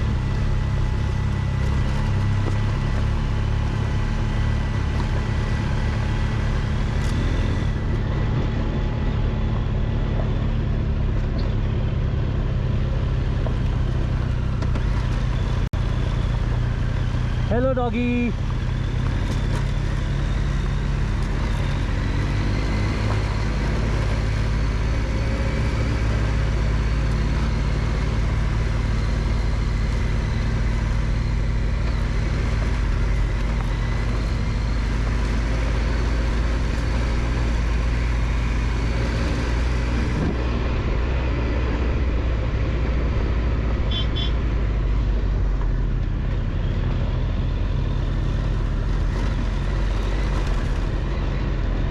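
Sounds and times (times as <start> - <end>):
tyre noise on dirt road: 0.0 - 51.9
wind: 0.0 - 51.9
motorcycle engine running: 43.1 - 46.2.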